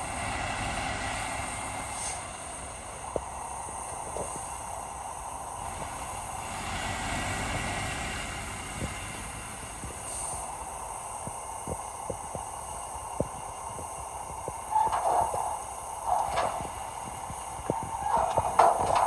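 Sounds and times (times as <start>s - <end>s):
heavy machinery running: 14.6s - 19.0s
sharp metal clanks and knocks: 14.8s - 16.8s, 17.7s - 19.0s.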